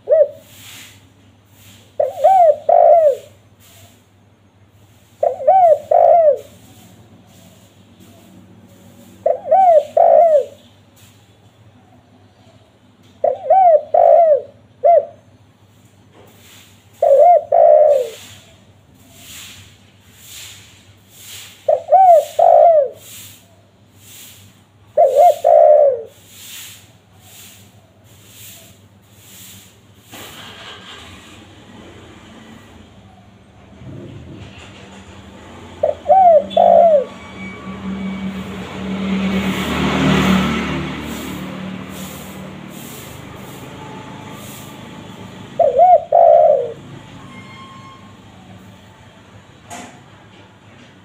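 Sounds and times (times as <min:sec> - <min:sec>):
dove cooing: 0:00.0 - 0:00.8, 0:02.0 - 0:03.4, 0:05.2 - 0:07.7, 0:09.2 - 0:10.6, 0:13.2 - 0:15.2, 0:17.0 - 0:18.4, 0:21.7 - 0:23.3, 0:24.9 - 0:26.2, 0:35.7 - 0:37.2, 0:45.2 - 0:46.9
steady background hiss: 0:00.0 - 0:11.5, 0:13.5 - 0:30.3.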